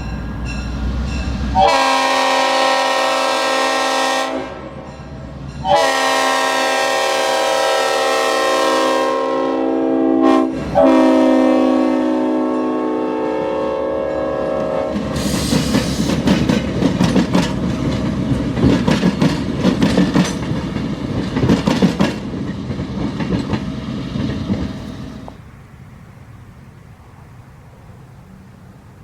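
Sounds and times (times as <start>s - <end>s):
locomotive air horn chord: 1.4s - 4.9s, 5.6s - 15.6s
wheels clicking over rail joints: 14.9s - 25.5s.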